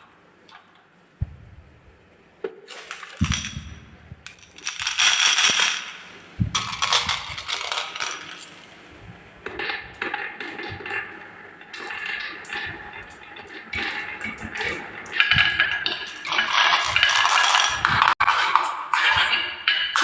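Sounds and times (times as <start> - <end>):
marbles clattering down wooden run: 2.8 - 8.6, 15.3 - 19.3.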